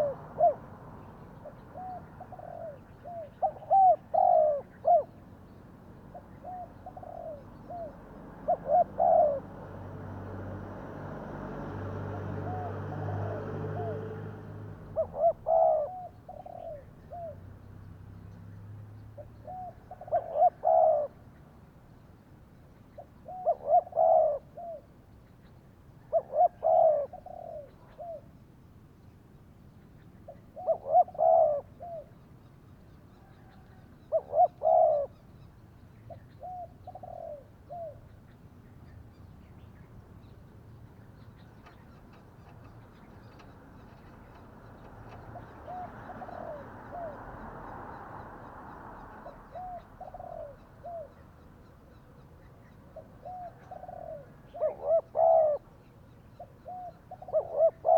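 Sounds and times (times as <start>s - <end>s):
dove cooing: 0.0s - 5.2s, 6.1s - 9.9s, 12.3s - 17.4s, 19.2s - 21.2s, 23.0s - 24.9s, 26.1s - 28.3s, 30.3s - 32.2s, 33.2s - 35.2s, 36.1s - 38.1s, 41.4s - 47.5s, 49.0s - 51.2s, 52.4s - 57.9s.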